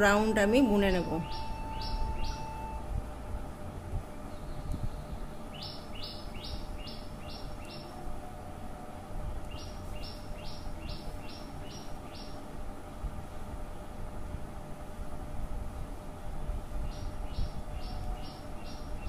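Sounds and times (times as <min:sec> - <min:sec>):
bird chirping: 0:00.0 - 0:02.8, 0:04.3 - 0:07.9, 0:09.5 - 0:12.4
low steady background noise: 0:00.0 - 0:19.0.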